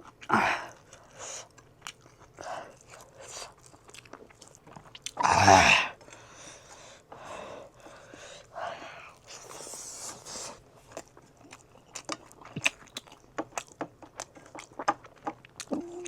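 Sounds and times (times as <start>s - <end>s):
person chewing food: 0.0s - 16.0s
wet mouth sounds: 9.6s - 16.0s.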